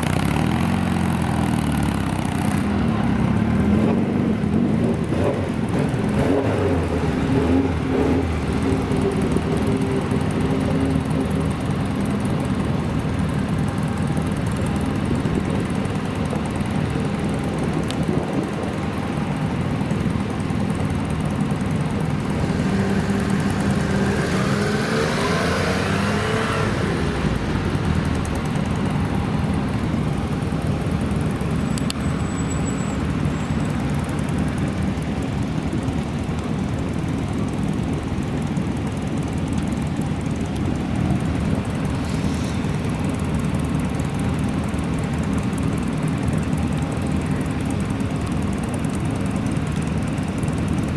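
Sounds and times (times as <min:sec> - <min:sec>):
engine revving: 0:00.0 - 0:12.0, 0:21.6 - 0:30.0
car engines running: 0:00.0 - 0:50.9.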